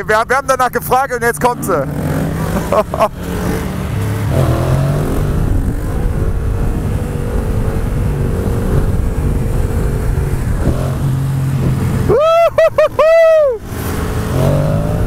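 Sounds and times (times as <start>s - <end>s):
motorcycle engine running: 0.0s - 15.0s
wind rumble on microphone: 4.4s - 12.4s.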